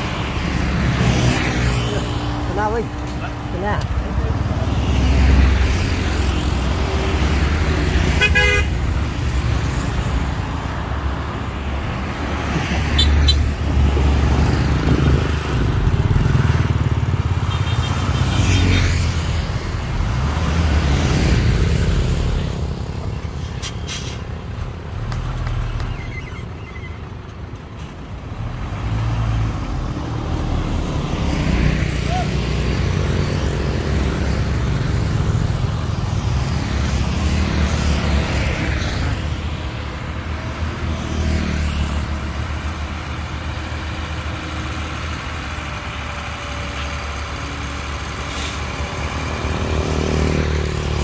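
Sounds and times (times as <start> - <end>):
horn toots: 8.1 - 8.8.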